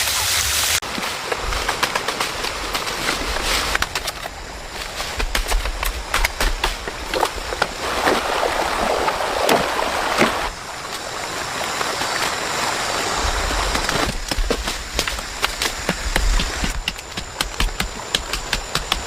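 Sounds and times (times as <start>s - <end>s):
flood water rushing: 6.1s - 16.6s.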